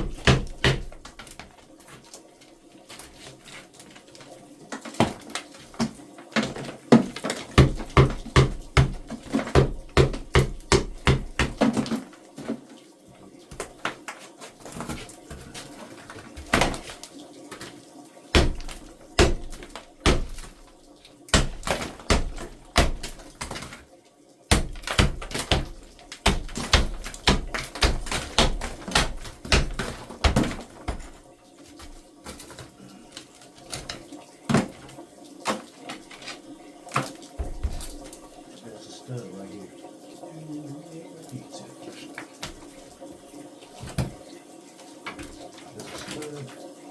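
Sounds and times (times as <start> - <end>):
hammer-like knocks: 0.0 - 1.2, 6.9 - 11.9, 18.4 - 20.6, 21.3 - 23.2, 24.5 - 31.2.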